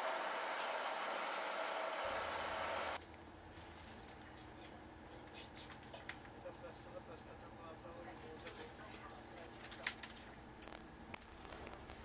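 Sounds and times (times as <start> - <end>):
low hum of train carriage: 3.2 - 10.6.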